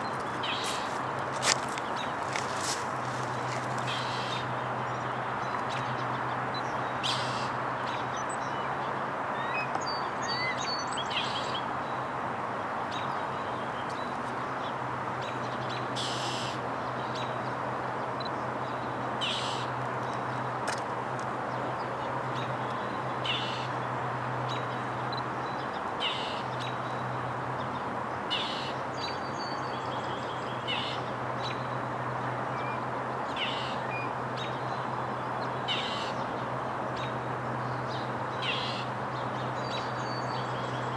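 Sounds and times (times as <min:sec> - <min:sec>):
distant city noise: 0:00.0 - 0:05.7
bird harsh raspy calls: 0:01.6 - 0:04.4, 0:16.0 - 0:16.6.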